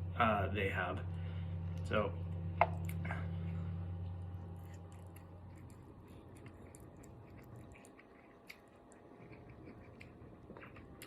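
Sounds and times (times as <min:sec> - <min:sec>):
low hum: 0:00.0 - 0:11.0
person chewing noodles: 0:02.7 - 0:11.0.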